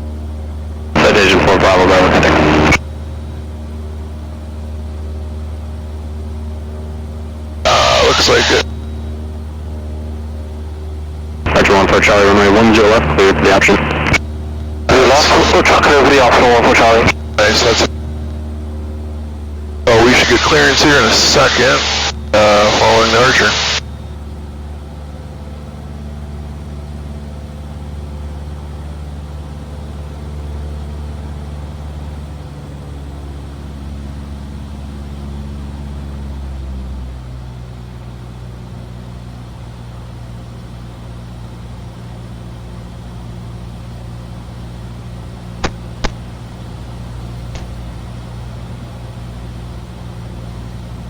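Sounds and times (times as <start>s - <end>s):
aircraft engine and propeller drone: 0.0s - 51.0s
sharp clicks: 45.6s - 46.3s.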